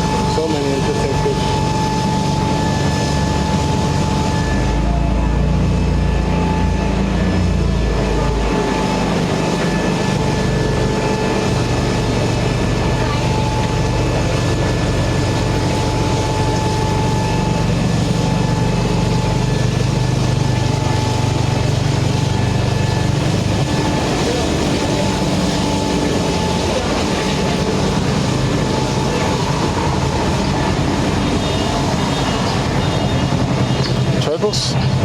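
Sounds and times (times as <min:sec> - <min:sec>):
voices: 0:00.0 - 0:02.7
low machine-like rumble: 0:00.0 - 0:35.0
thin steady whine: 0:00.0 - 0:35.0.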